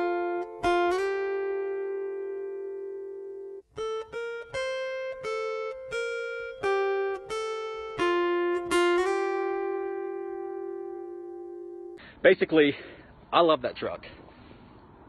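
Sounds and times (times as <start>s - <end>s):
guitar picking single notes: 0.0s - 12.0s.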